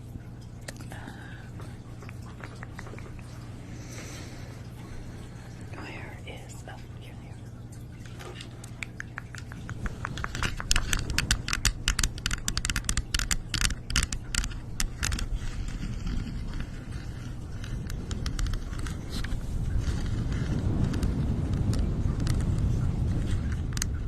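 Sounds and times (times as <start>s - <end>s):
steady low rumble: 0.0s - 24.0s
sharp clicks and scratchy taps: 2.0s - 3.3s, 8.0s - 24.0s.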